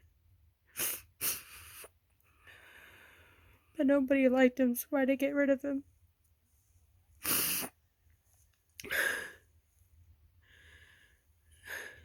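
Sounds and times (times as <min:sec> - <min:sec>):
person sniffing and breathing: 0:00.7 - 0:03.6, 0:07.2 - 0:07.8, 0:08.8 - 0:09.5, 0:10.4 - 0:12.0.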